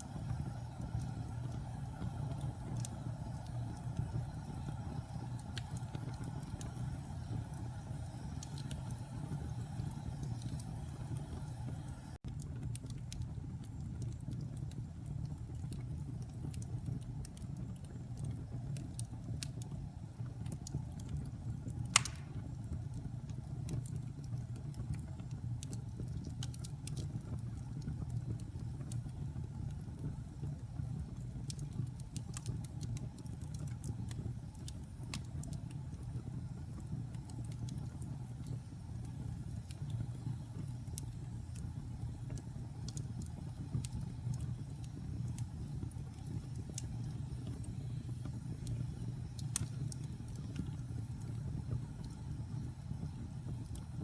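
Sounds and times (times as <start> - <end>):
fire crackling: 0.0 - 54.0
wood fire rumbling: 0.0 - 54.0
sharp pop from fire: 21.8 - 22.8.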